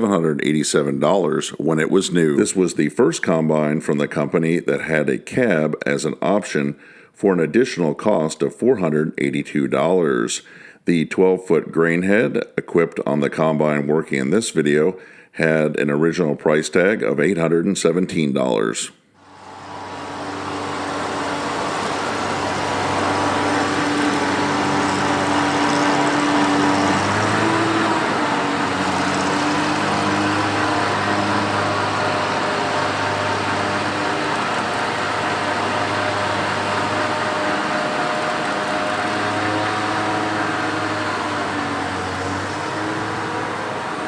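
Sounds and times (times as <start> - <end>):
threshing machinery whir: 19.2 - 44.0
combine engine drone: 19.4 - 44.0.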